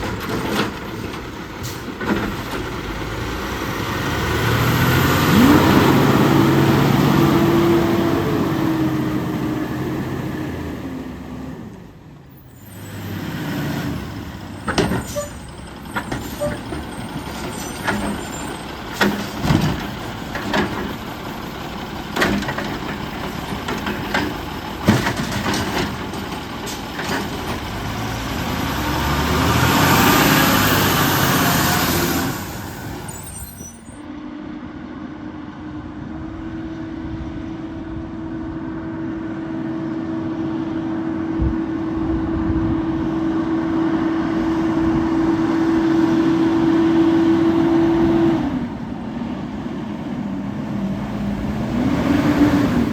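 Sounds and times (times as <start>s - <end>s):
garbage truck hissing and crunching: 0.0s - 34.0s
garbage truck hum: 0.0s - 52.9s.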